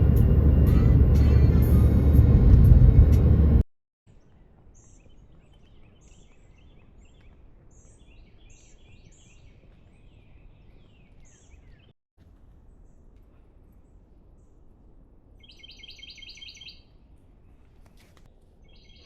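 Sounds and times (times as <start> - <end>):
small birds chirping: 4.1 - 11.9, 15.4 - 17.8, 18.6 - 19.0.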